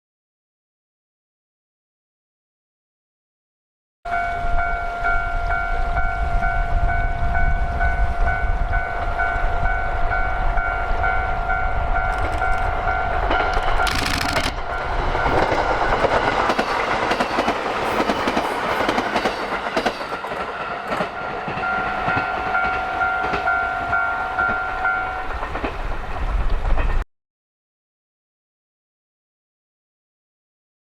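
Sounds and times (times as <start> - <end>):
train wheels clattering over rail joints: 12.1 - 23.6, 25.2 - 27.0
two-tone level crossing alarm: 21.2 - 25.3.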